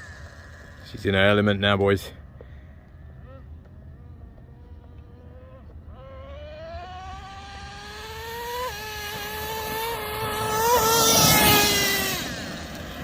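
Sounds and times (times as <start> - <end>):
rc truck nitro engine revving: 3.2 - 13.0.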